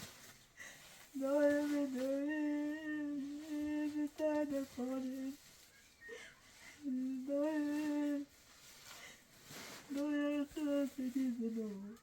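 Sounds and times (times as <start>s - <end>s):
person humming held notes: 1.2s - 5.4s, 6.0s - 8.3s.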